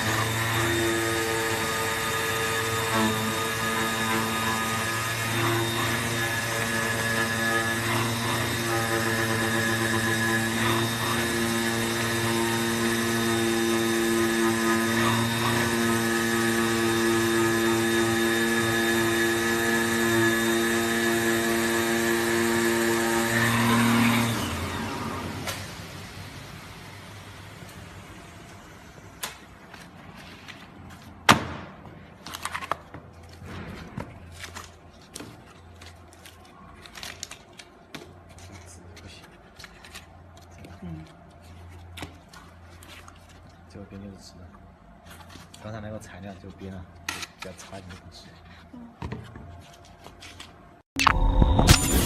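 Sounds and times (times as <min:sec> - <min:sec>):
cnc cutter motor whine: 0:00.0 - 0:26.1, 0:51.0 - 0:52.0.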